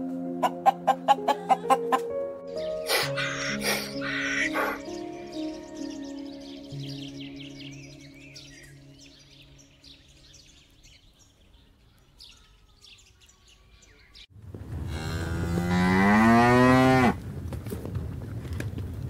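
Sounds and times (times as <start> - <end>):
faint bird chirps: 2.6 - 14.3
cow mooing: 14.8 - 17.2.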